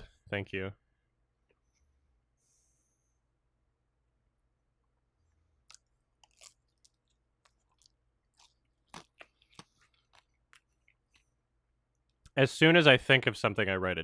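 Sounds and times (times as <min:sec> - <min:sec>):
crunching and chewing: 0:05.6 - 0:12.3.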